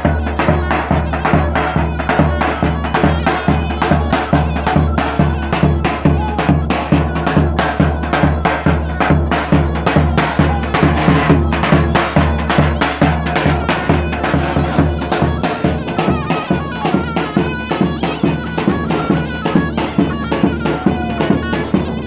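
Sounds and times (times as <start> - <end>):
steady drumbeat: 0.0 - 22.0
wind instrument melody: 0.0 - 22.0.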